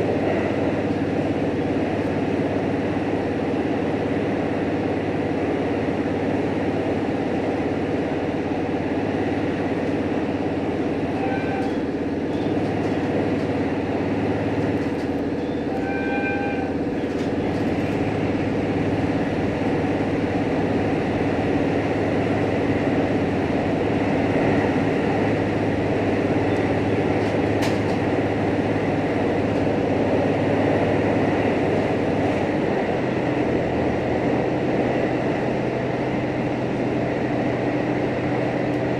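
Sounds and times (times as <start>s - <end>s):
railcar engine and motor drone: 0.0s - 38.9s
train wheels on rails: 0.0s - 38.9s
brief high tone: 15.4s - 16.7s.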